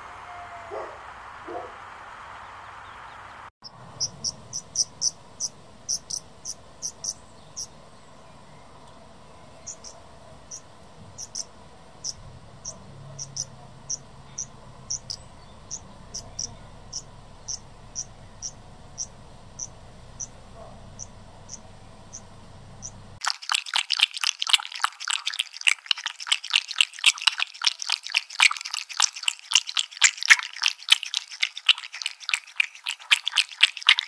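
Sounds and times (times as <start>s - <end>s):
faint steady hiss: 0.0s - 23.2s
insect chirping: 1.2s - 7.8s, 9.6s - 23.2s.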